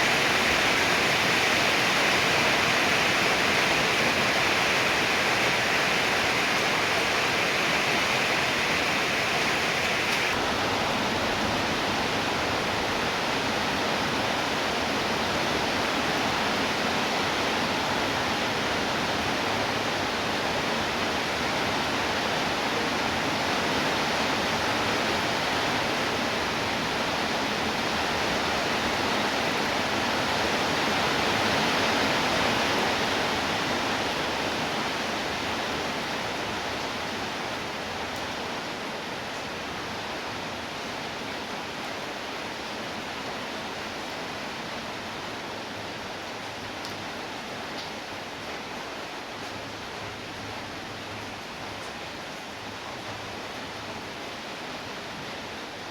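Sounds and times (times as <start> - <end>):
higher hiss: 0.0 - 10.4
heavy rain hiss: 0.0 - 55.9.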